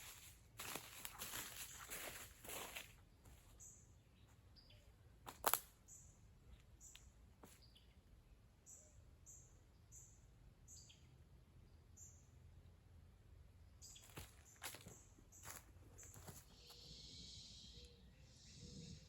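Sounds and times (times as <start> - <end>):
high bird chirps: 13.8 - 19.0.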